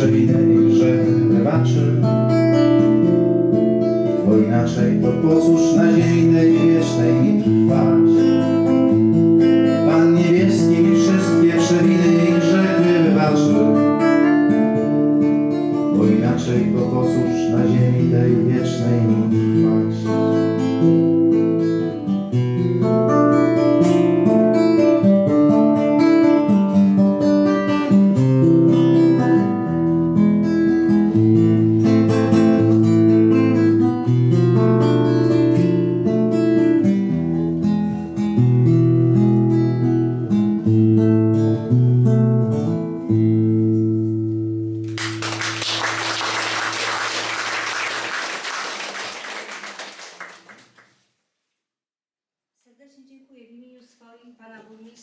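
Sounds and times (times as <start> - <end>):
acoustic guitar picking: 0.0 - 45.3
audience applause: 45.0 - 50.9.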